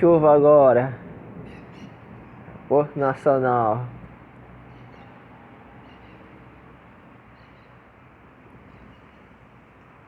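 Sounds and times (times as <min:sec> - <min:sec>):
faint bird chirps: 0:05.8 - 0:06.3, 0:07.3 - 0:07.8, 0:08.7 - 0:09.4.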